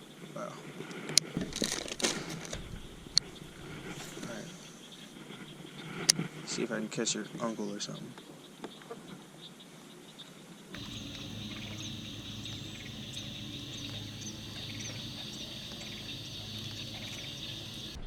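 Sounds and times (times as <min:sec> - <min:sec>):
bird chirps: 0:10.8 - 0:18.0
insects chorus: 0:10.8 - 0:18.0
low steady hum: 0:10.8 - 0:18.0.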